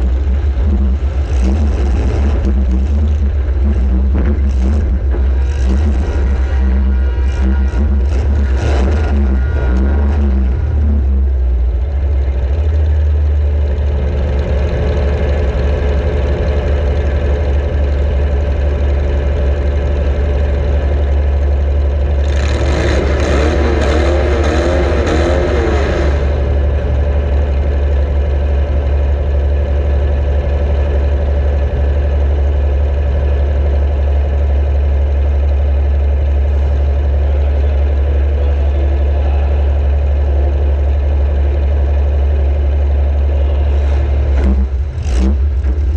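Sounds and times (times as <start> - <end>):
engine wavering revving burst: 0.0 - 11.2, 22.2 - 27.6
car engine rumbling: 0.0 - 45.9.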